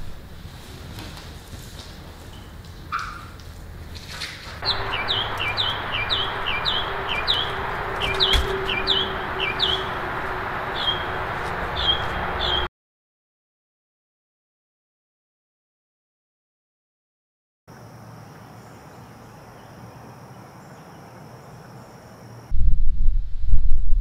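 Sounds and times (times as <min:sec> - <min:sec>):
steady outdoor hiss: 0:00.0 - 0:12.7, 0:17.7 - 0:22.6
songbird chirping: 0:04.6 - 0:12.7, 0:17.7 - 0:22.5.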